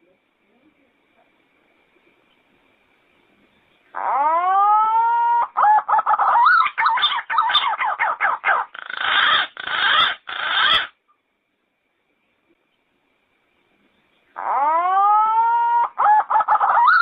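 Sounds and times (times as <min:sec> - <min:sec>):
pigeon calling: 0:03.9 - 0:11.0, 0:14.4 - 0:17.0.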